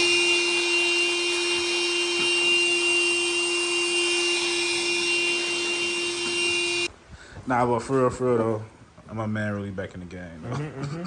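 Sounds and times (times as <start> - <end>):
handheld air blower running: 0.0 - 6.9.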